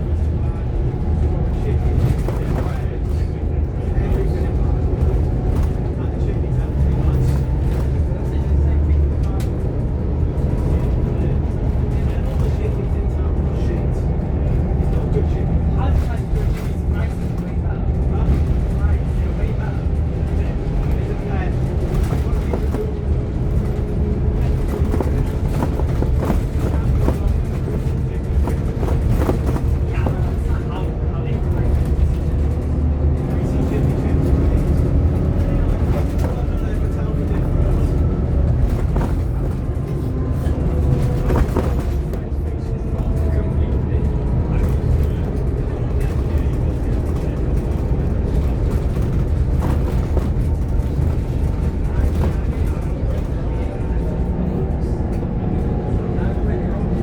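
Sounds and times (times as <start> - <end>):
bodywork rattles and clicks: 0.0 - 57.0
bus diesel engine droning: 0.0 - 57.0.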